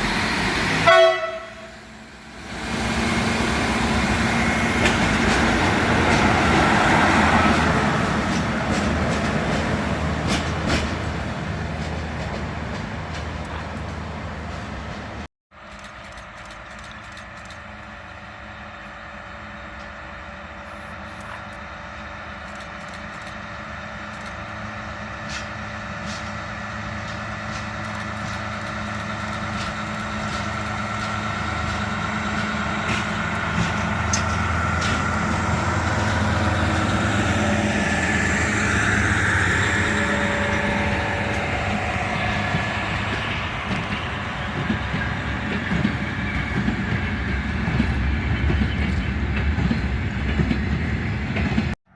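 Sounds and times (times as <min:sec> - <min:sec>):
freight train locomotive humming: 0:00.0 - 0:51.9
clicks from the track: 0:15.6 - 0:17.8, 0:27.0 - 0:31.8.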